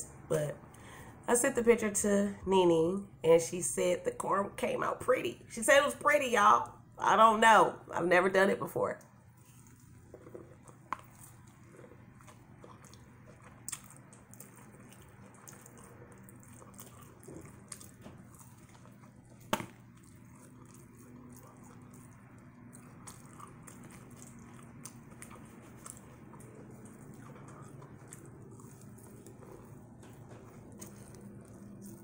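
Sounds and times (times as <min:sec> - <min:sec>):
chewing crispy fried corn: 0:09.0 - 0:32.0.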